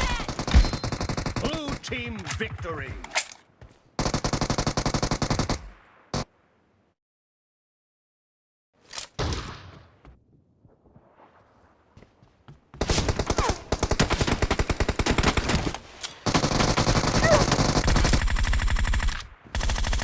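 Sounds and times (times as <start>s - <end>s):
rapid automatic gunfire: 0.3s - 1.8s, 4.0s - 6.2s, 12.8s - 15.7s, 16.3s - 20.0s.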